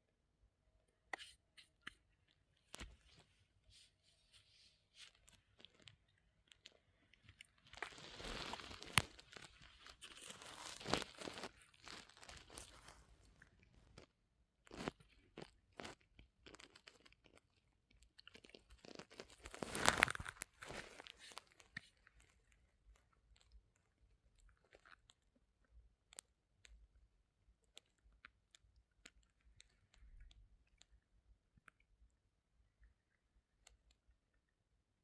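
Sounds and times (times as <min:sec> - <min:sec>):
crunching and rustling: 0:06.6 - 0:14.1, 0:18.2 - 0:22.5.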